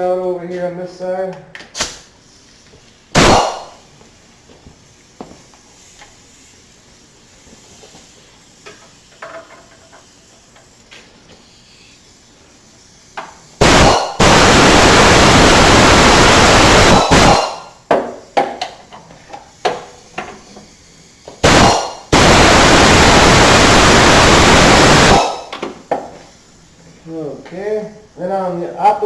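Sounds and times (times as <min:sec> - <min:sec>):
impact wrench hammering: 0:03.2 - 0:03.8, 0:13.6 - 0:14.8, 0:21.4 - 0:22.6.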